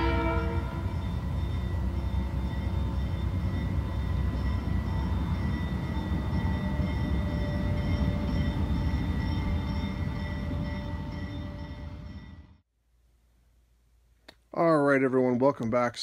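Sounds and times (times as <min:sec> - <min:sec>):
train rumbling: 0:00.0 - 0:12.6.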